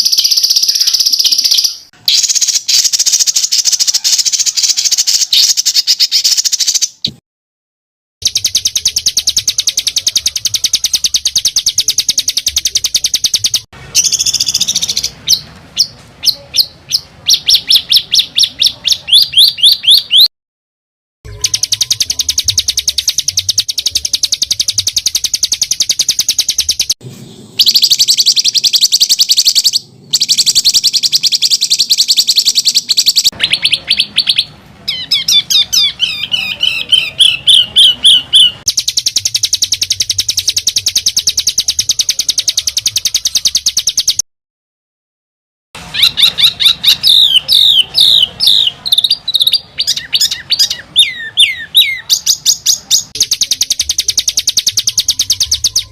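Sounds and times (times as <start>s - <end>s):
sharp upswept bird notes: 0.0s - 7.2s, 8.2s - 20.3s, 21.3s - 44.2s, 45.8s - 55.9s
songbird rapid rolling trills: 21.3s - 44.2s.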